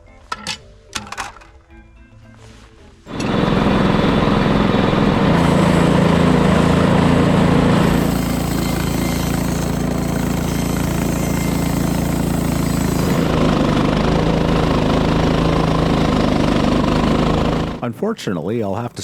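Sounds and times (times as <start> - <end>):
sawmill gas engine running: 3.1 - 18.0
saw blade cutting log: 4.5 - 17.8.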